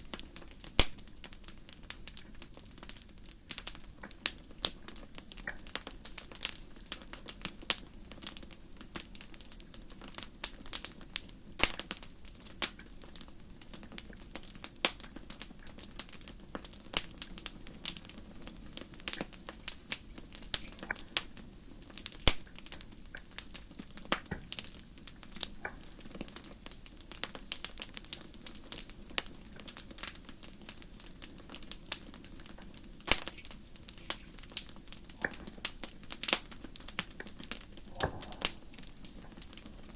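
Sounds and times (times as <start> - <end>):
fire crackling and popping: 0.0 - 39.9
low rush of burning: 33.3 - 39.9.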